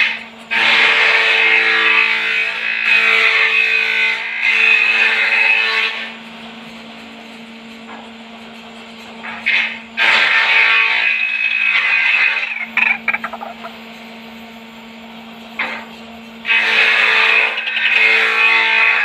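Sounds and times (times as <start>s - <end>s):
waterhen harsh croaking call: 12.4s - 13.8s.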